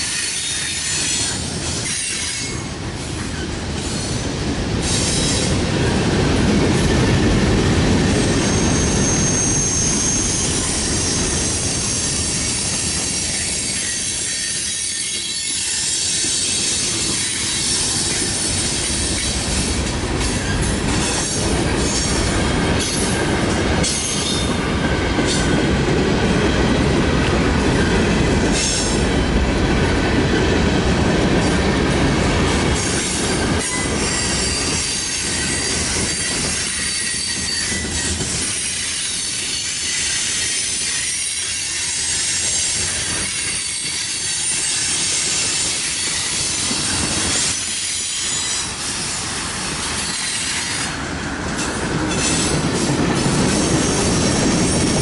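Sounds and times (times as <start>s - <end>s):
high wheel squeal: 0.0s - 2.7s, 8.0s - 19.6s, 32.8s - 51.0s
steel wheels rumbling on rail: 0.0s - 55.0s.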